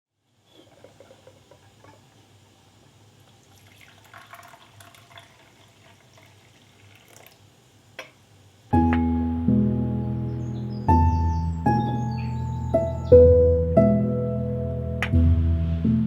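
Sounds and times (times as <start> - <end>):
water trickling and dripping: 3.2 - 7.5.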